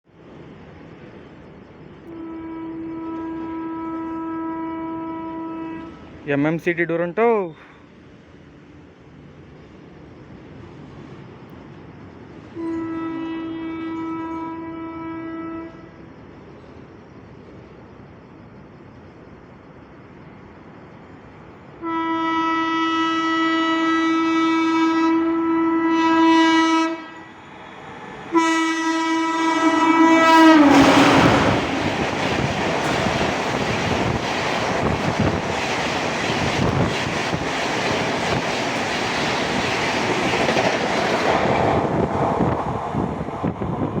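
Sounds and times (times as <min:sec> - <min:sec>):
train rushing by: 0:00.1 - 0:44.0
locomotive horn blasts: 0:02.1 - 0:06.1, 0:12.6 - 0:15.9, 0:21.8 - 0:27.3, 0:28.3 - 0:32.0
coaches clattering over rail joints: 0:31.5 - 0:41.3.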